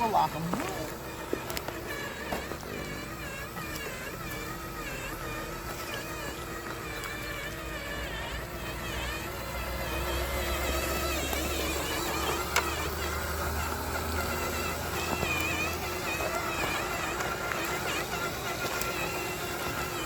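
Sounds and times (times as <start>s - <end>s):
toy truck motor whining: 0.0s - 20.0s
tyres on gravel: 0.0s - 20.0s.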